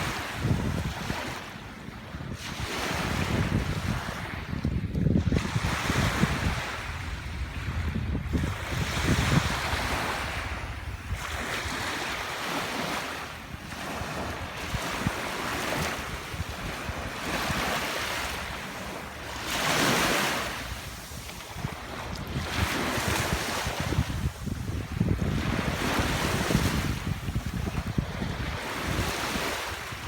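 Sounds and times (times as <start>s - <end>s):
wind buffeting microphone: 0.0s - 30.0s
sea waves washing onto beach: 8.3s - 30.0s.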